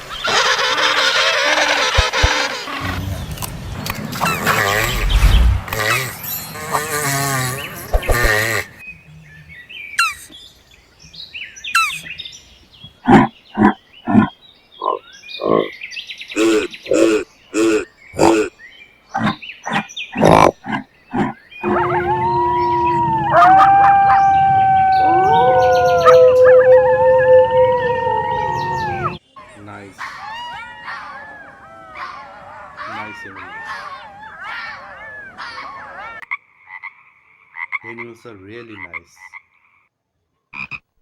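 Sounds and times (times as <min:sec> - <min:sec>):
animal calls: 0:00.0 - 0:03.2, 0:12.9 - 0:15.7, 0:16.3 - 0:18.5, 0:19.1 - 0:29.2, 0:29.9 - 0:36.2.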